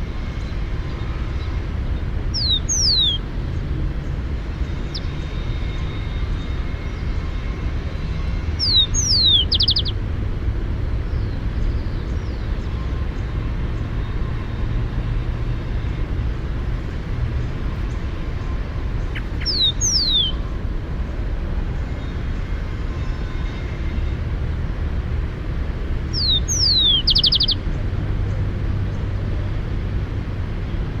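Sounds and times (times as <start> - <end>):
distant traffic rumble: 0.0 - 31.0
sparrow singing: 2.3 - 3.2, 4.6 - 7.4, 8.3 - 10.0, 17.8 - 20.5, 26.0 - 28.4.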